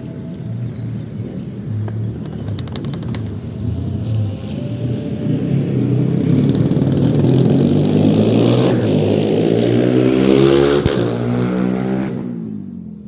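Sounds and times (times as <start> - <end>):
vehicle engine speeding up: 2.6 - 12.6.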